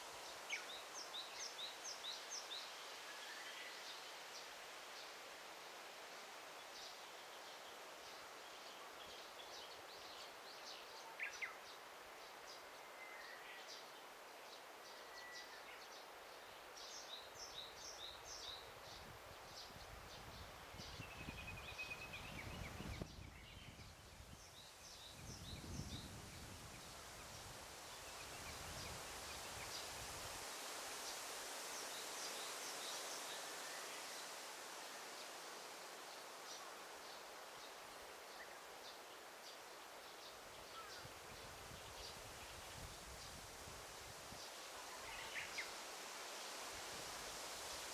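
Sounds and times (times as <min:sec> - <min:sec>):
rustling leaves: 0:00.0 - 0:47.9
small birds chirping: 0:36.0 - 0:43.6, 0:44.3 - 0:45.8.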